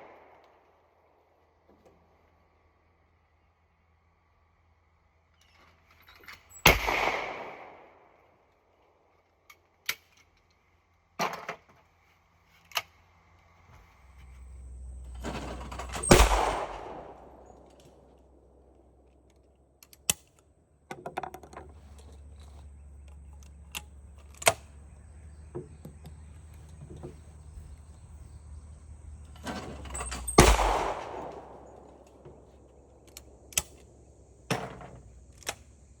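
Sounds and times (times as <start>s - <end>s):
shotgun shots with echo: 6.6s - 8.0s, 15.8s - 17.7s, 30.2s - 32.0s.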